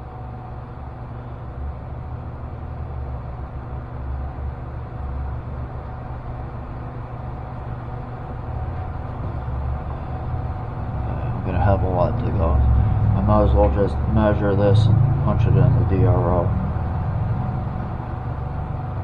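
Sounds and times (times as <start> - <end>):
machine tool humming: 6.1 - 19.0.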